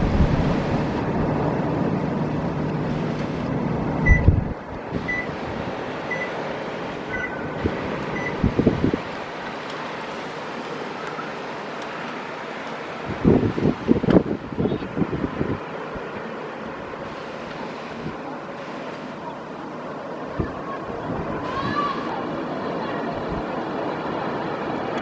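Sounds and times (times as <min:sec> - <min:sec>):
wind buffeting microphone: 0:00.0 - 0:06.0, 0:06.9 - 0:09.6, 0:13.0 - 0:18.3, 0:20.2 - 0:22.5
blizzard wind: 0:00.0 - 0:25.0
traffic rumble: 0:00.0 - 0:25.0
short high beeps: 0:05.1 - 0:05.3, 0:06.1 - 0:06.3, 0:07.1 - 0:07.4, 0:08.2 - 0:08.4.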